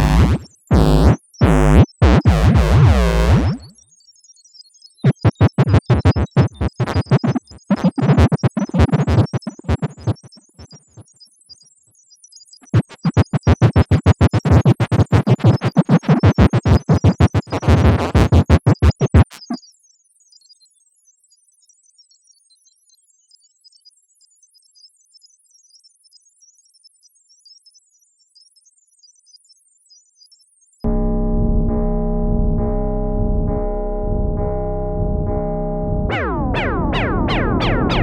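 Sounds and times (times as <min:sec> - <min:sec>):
electronic chattering pulses: 0:00.0 - 0:03.8, 0:05.0 - 0:11.0, 0:12.6 - 0:19.6, 0:30.9 - 0:38.0.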